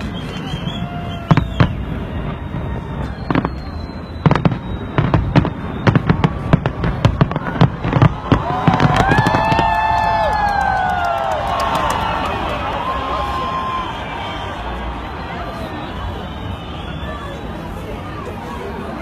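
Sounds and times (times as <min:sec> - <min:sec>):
fireworks bangs: 0:00.0 - 0:12.5
crowd cheering and shouting: 0:00.0 - 0:19.0.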